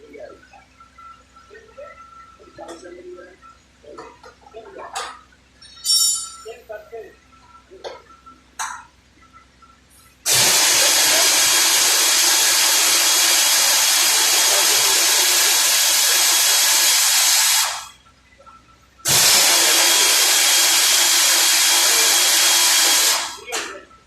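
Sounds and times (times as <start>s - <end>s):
power tool hissing: 10.3s - 17.9s, 19.1s - 23.5s.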